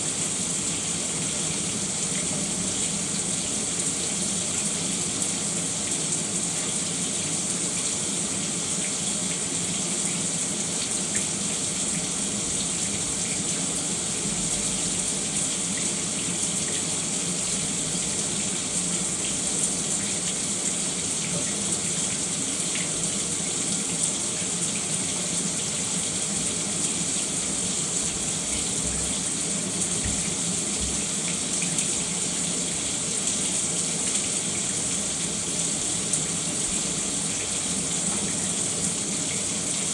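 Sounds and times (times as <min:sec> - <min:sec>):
water drips: 0:10.8 - 0:39.9.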